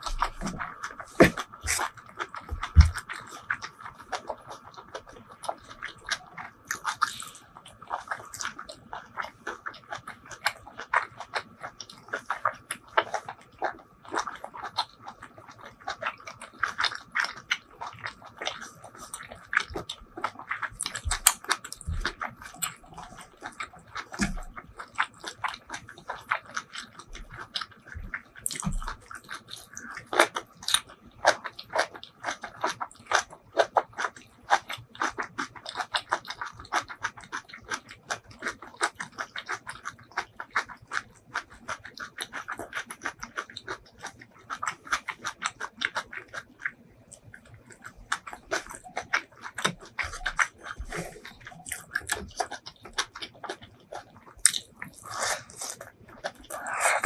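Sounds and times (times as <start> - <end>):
close chewing with wet smacks: 0.0 - 57.0.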